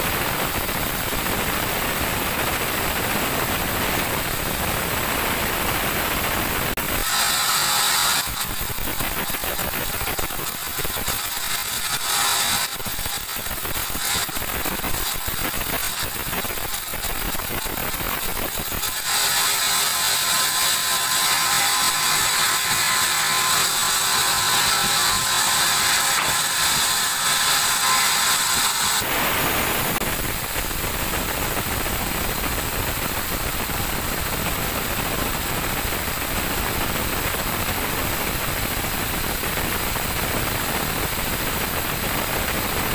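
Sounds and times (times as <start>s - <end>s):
band saw cutting log: 6.8s - 30.0s.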